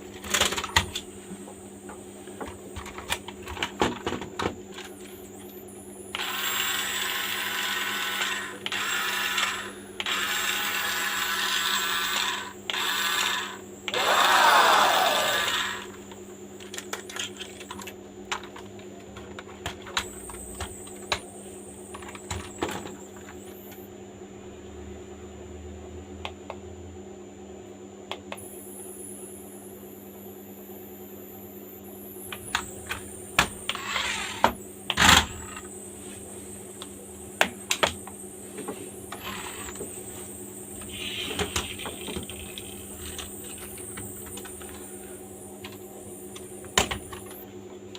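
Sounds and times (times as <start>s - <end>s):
low hum: 28.3s - 47.8s.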